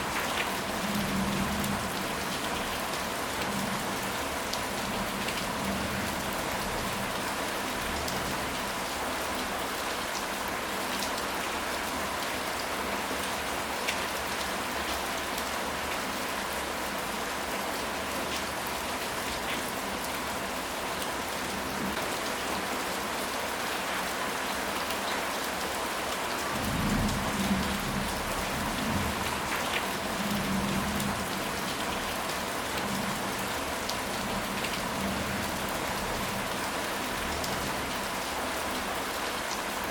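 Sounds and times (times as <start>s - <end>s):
steady rain: 0.0s - 39.9s
low rumble of thunder: 26.6s - 29.2s.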